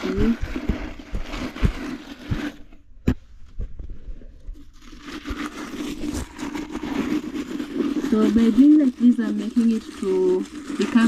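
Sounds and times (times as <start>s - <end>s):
spade scraping ash on ground: 5.2s - 11.0s.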